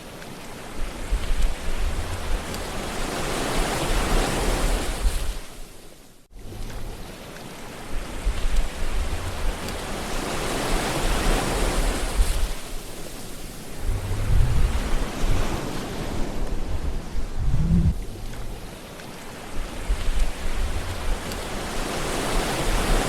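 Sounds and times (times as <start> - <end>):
ocean waves washing: 0.0 - 23.0
gusty low rumbles: 1.1 - 2.6, 13.6 - 18.7, 19.6 - 21.8.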